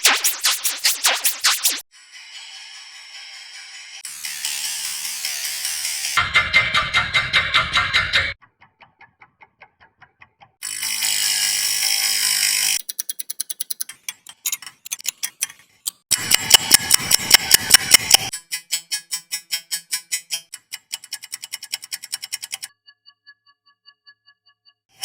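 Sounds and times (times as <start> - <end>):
clock ticking: 12.8 - 18.3.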